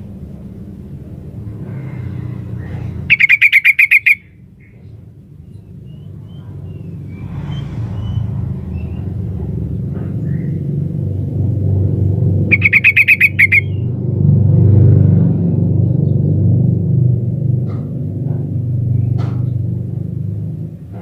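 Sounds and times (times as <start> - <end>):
faint short bird calls: 2.6 - 4.9
bulbul chattering calls: 2.6 - 7.2, 12.4 - 13.9
steady low rumble: 4.3 - 21.0.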